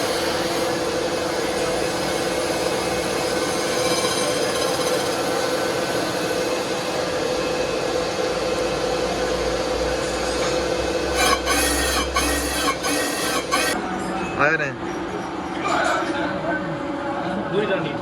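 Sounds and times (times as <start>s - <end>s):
steady machine tones: 0.0s - 13.8s
factory machinery hum: 0.0s - 18.0s.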